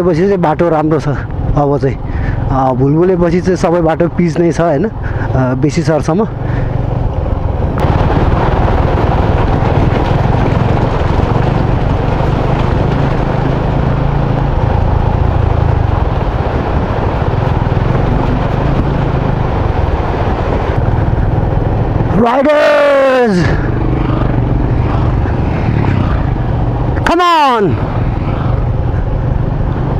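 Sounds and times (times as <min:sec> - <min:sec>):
motorcycle engine running: 0:01.2 - 0:04.3, 0:04.9 - 0:29.9
wind rush over microphone: 0:06.4 - 0:29.9.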